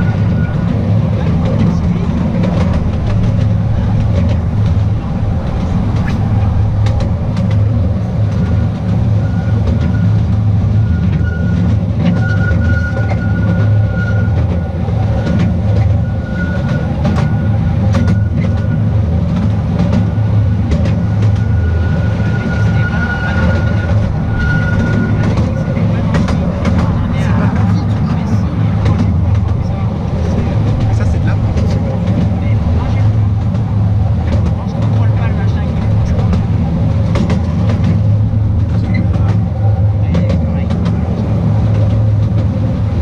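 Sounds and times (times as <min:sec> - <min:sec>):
train rumbling on track: 0:00.0 - 0:43.0
wheel and rail clicks: 0:00.0 - 0:43.0
thin wheel squeal: 0:10.8 - 0:14.5, 0:16.0 - 0:18.8, 0:21.4 - 0:25.8.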